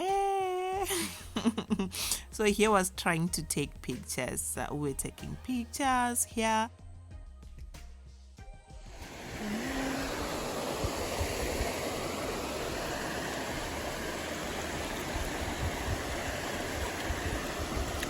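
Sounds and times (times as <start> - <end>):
flowing water rushing: 9.0 - 18.0.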